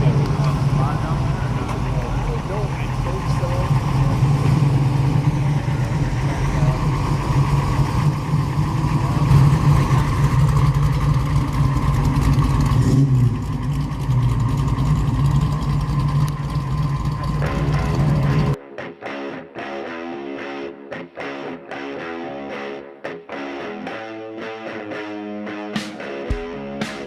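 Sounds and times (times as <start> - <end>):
car engine idling: 0.0 - 18.6.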